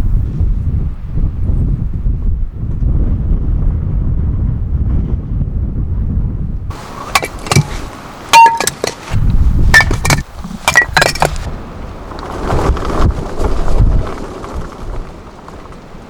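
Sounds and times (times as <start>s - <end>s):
wind buffeting microphone: 0.0s - 16.0s
hard objects clinking and knocking: 7.1s - 9.1s, 9.7s - 11.5s.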